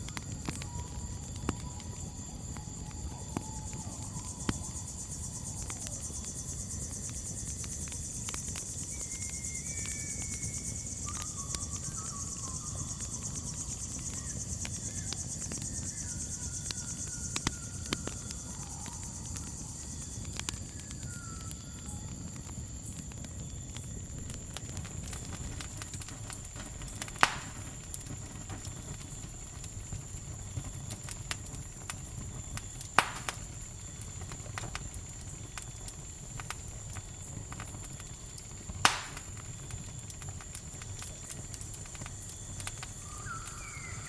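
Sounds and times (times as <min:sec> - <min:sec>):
campfire crackling and popping: 0:00.0 - 0:44.0
crickets trilling: 0:00.0 - 0:44.0
whistled bird calls: 0:08.9 - 0:22.2, 0:42.8 - 0:44.0.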